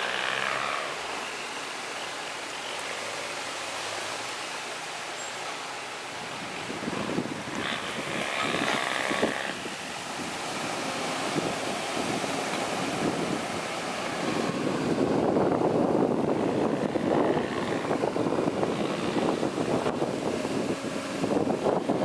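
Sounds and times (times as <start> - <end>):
wind on microphone: 6.0 - 22.0.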